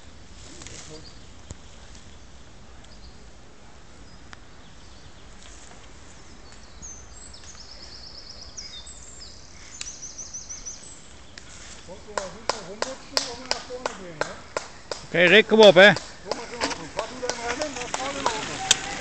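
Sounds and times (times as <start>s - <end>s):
songbird singing: 0.0s - 19.0s.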